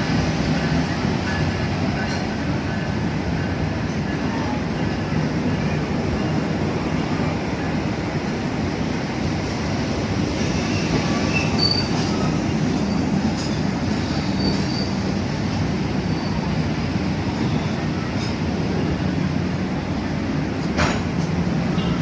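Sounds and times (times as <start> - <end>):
train wheels rumbling on rail: 0.0 - 22.0
high wheel squeals: 10.6 - 13.0, 14.0 - 15.0.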